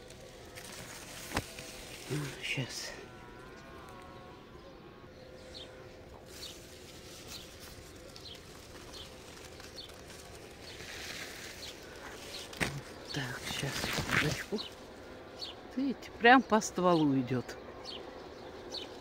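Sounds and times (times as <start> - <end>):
leaves rustling: 0.0 - 4.3, 5.3 - 15.7.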